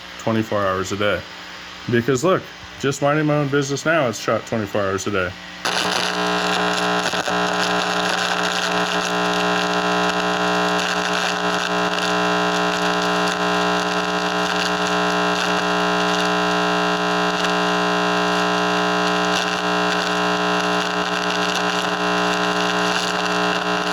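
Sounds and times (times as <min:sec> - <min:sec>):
electronic buzz and hiss: 0:05.6 - 0:23.9.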